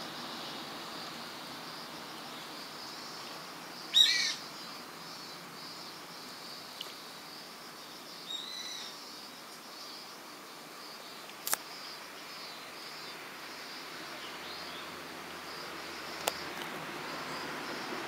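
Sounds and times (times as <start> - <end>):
high-pitched insect hiss: 0.0 - 18.0
bird call: 3.9 - 4.4.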